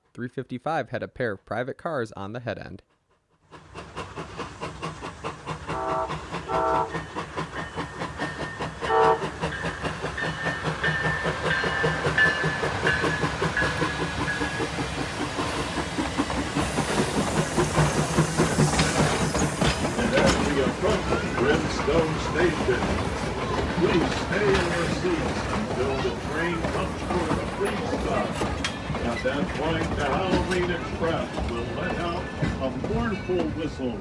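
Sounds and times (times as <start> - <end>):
train wheels clattering on tracks: 3.4 - 34.0.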